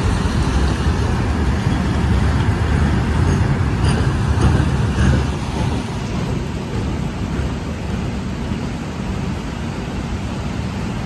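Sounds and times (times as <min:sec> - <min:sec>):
heavy rain hiss: 0:00.0 - 0:11.0
train wagons rumbling past: 0:00.0 - 0:11.0
wheel clacks: 0:01.5 - 0:07.6.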